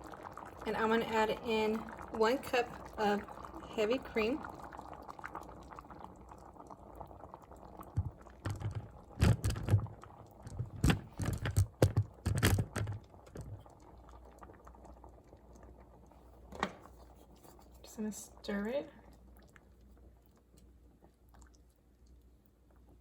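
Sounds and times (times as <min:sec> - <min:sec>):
faint liquid sounds: 0:00.0 - 0:23.0
cup and pot clicking: 0:07.9 - 0:13.6.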